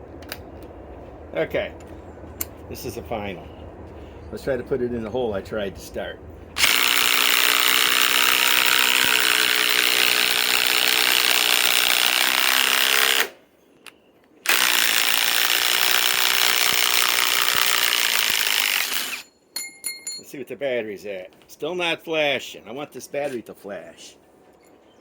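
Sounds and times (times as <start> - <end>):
impact wrench hammering screw: 6.6 - 13.3, 14.5 - 19.3.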